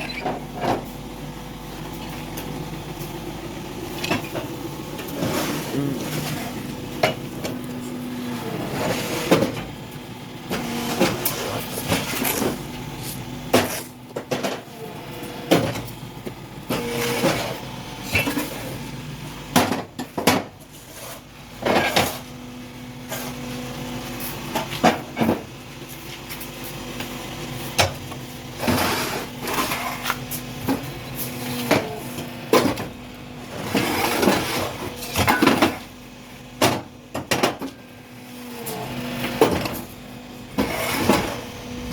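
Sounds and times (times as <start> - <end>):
machine hum: 0.0 - 19.6.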